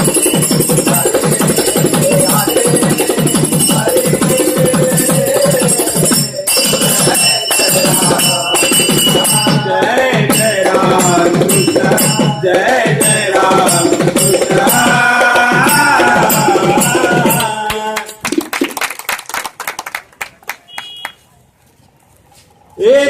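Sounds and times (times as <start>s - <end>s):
hand cymbals ringing: 0.0s - 9.7s, 10.3s - 18.2s.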